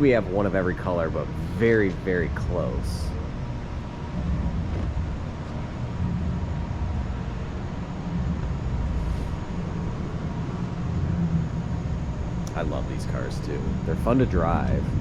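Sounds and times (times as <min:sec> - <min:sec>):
ventilation rumble: 0:00.0 - 0:15.0.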